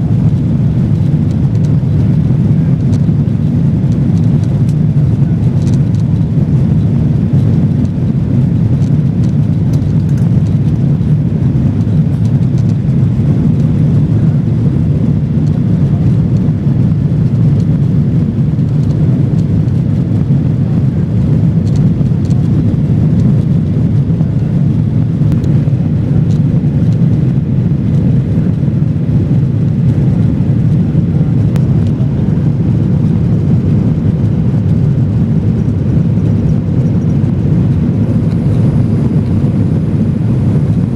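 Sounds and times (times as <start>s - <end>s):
airflow rush: 0.0s - 8.5s, 20.5s - 40.9s
airliner cabin drone: 0.0s - 40.9s.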